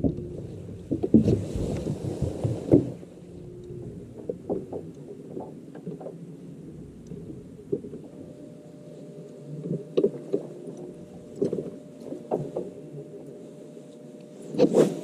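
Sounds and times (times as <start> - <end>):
knocks and bumps on a boat: 0.0 - 3.1
low steady hum: 0.0 - 15.0.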